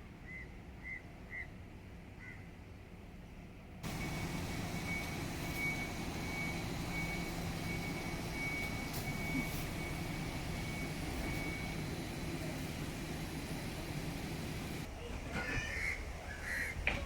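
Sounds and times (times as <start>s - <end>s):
reversing alarm beeping: 3.8s - 14.9s.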